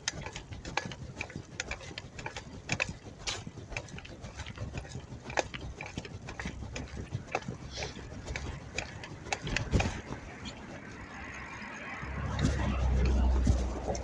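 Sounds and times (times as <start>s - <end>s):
bicycle clicking and rattling: 0.0s - 14.0s
steady low rumble: 3.9s - 14.0s.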